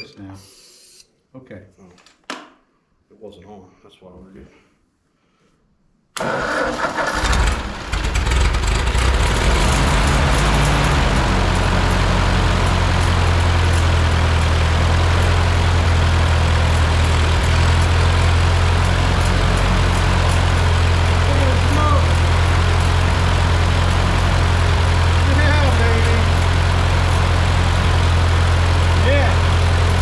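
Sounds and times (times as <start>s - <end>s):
engine starting and running: 6.2s - 30.0s.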